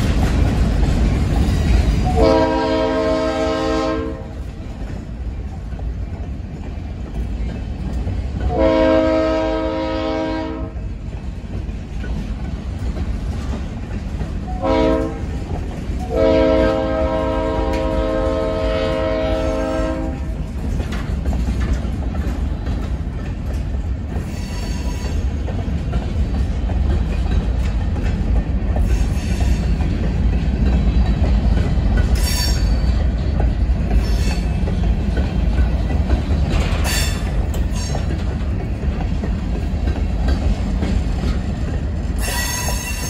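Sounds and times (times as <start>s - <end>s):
wheel clatter over rail joints: 0.0s - 3.2s, 4.2s - 9.1s, 10.8s - 43.0s
freight train rumbling past: 0.0s - 43.0s
locomotive air horn: 2.0s - 4.4s, 8.5s - 10.8s, 14.5s - 15.4s, 16.0s - 20.3s.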